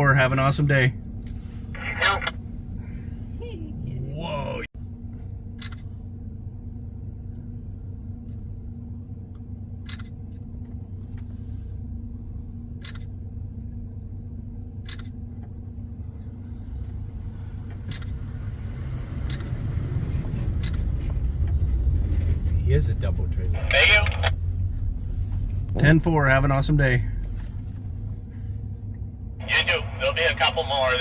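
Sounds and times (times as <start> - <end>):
low engine hum: 0.0 - 31.0
logging truck approaching: 16.0 - 29.5.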